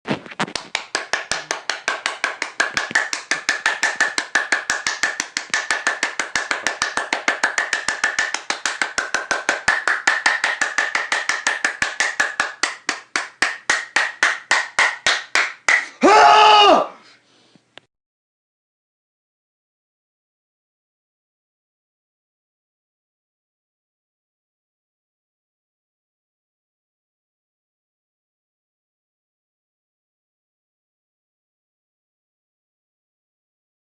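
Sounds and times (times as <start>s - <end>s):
fast hollow claps: 0.2s - 15.9s.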